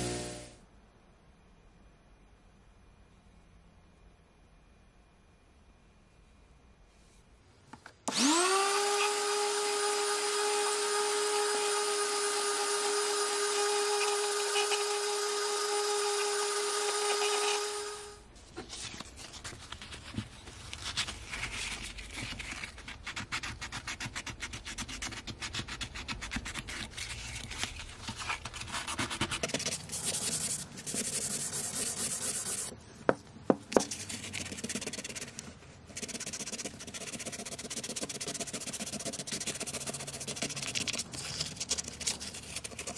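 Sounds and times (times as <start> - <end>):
sandpaper rubbing on wood: 13.5 - 15.2, 15.8 - 18.1, 28.6 - 32.7, 36.0 - 42.9.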